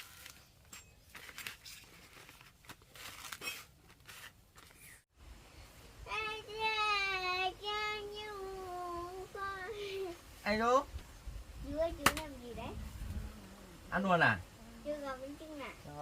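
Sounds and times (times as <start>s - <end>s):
faint rustling and crinkling: 0.0s - 5.1s
child singing: 6.1s - 10.2s.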